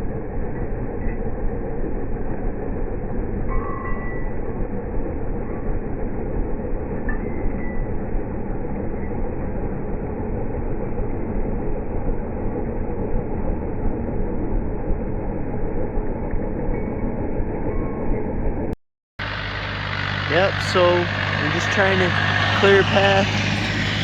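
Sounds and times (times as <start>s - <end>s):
engine rumbling under load: 19.2s - 24.0s.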